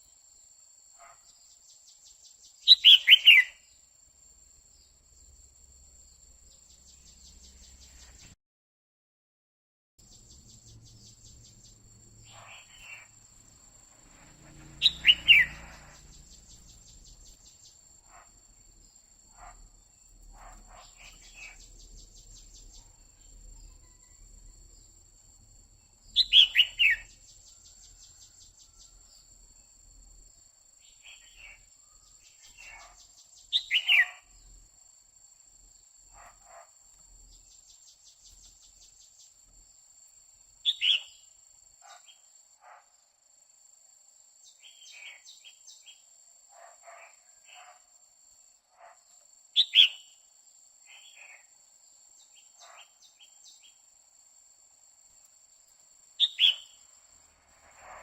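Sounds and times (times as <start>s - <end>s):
soft bird chirps: 2.2s - 3.6s, 10.0s - 18.3s, 19.4s - 24.9s, 25.9s - 29.3s, 30.8s - 34.6s, 56.2s - 56.8s
bulbul short falling calls: 14.0s - 17.4s, 26.1s - 27.2s.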